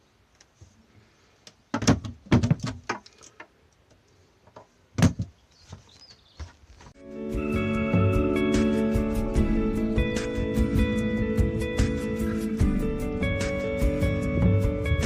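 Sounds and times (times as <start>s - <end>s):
sharp knocks and clatters: 1.7s - 3.5s
music: 7.0s - 15.0s.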